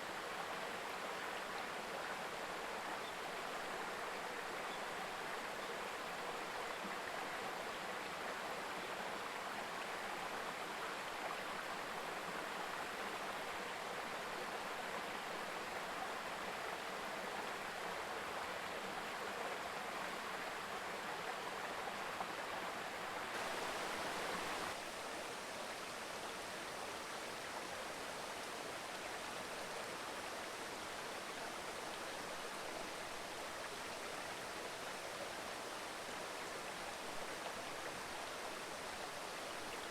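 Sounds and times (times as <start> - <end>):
river babbling over stones: 23.3 - 39.9.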